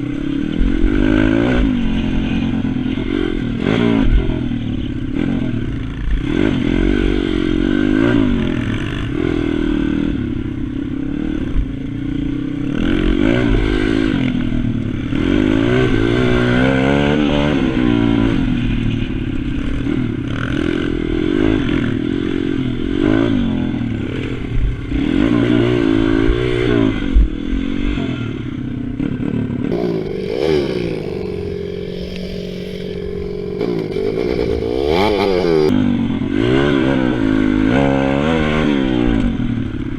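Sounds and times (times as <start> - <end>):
pit bike engine revving: 29.7 - 35.8.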